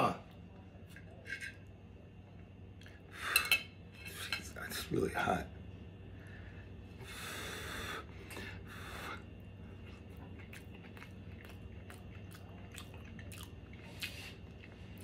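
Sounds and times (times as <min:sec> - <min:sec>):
puffs of breath: 0:06.2 - 0:09.3
faint chewing with wet clicks: 0:09.3 - 0:15.0.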